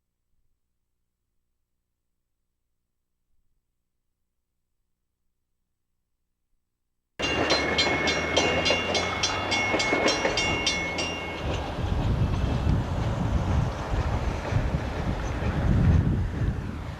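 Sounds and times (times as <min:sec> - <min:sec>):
freight train rumbling: 0:07.2 - 0:16.9.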